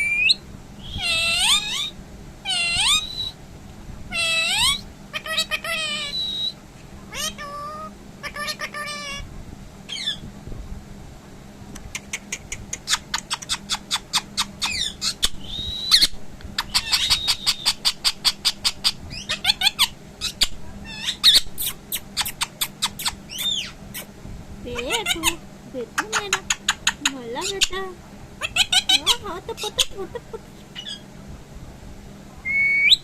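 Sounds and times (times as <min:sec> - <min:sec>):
parrot wavering whistles: 0:00.0 - 0:01.9, 0:02.5 - 0:03.4, 0:04.1 - 0:06.6, 0:13.4 - 0:24.1, 0:32.4 - 0:33.0
parrot chirping: 0:00.0 - 0:03.4, 0:04.1 - 0:09.2, 0:09.9 - 0:10.2, 0:12.0 - 0:24.1, 0:24.7 - 0:25.4, 0:26.0 - 0:27.8, 0:28.4 - 0:31.0.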